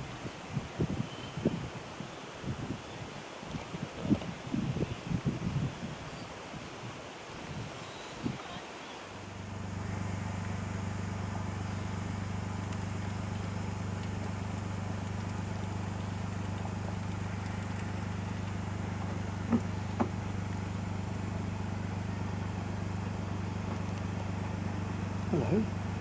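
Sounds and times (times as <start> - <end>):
low mechanical hum: 9.0 - 26.0.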